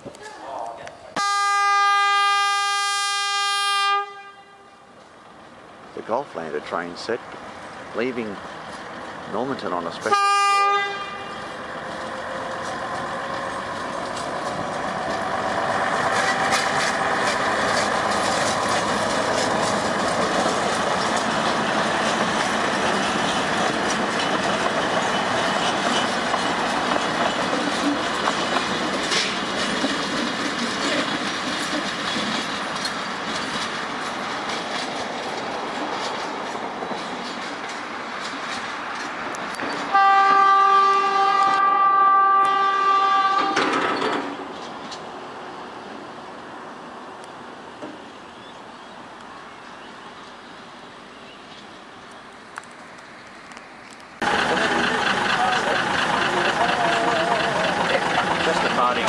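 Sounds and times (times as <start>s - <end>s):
diesel railcar passing: 0.0s - 59.0s
wheels clicking on rails: 11.6s - 40.0s, 52.6s - 59.0s.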